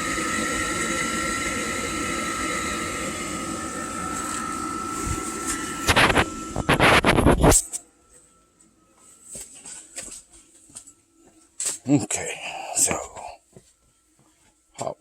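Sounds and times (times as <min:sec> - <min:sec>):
water heater rushing noise: 0:00.0 - 0:07.4
steady high whine: 0:00.0 - 0:13.8.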